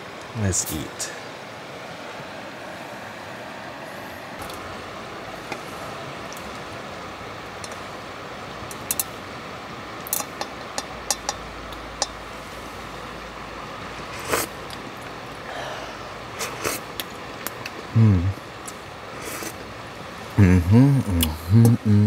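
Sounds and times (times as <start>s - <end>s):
wind hiss: 0.0s - 22.0s
passing traffic: 1.7s - 22.0s
utensils clinking against a bowl: 10.0s - 11.4s.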